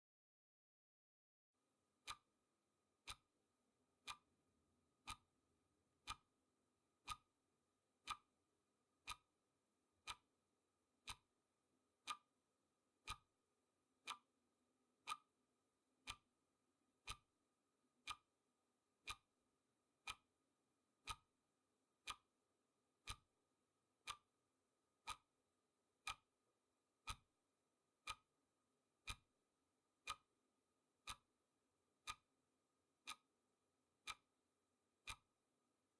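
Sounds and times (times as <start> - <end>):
clock ticking: 13.0 - 13.2, 16.0 - 16.2, 29.0 - 29.2, 31.0 - 31.2, 32.0 - 32.2.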